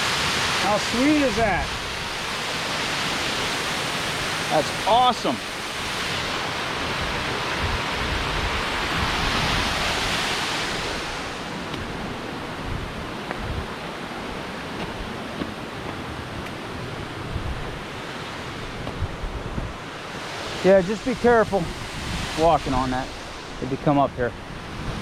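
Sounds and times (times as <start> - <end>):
waterfall rushing: 0.0 - 25.0
wind rumble on microphone: 5.8 - 25.0.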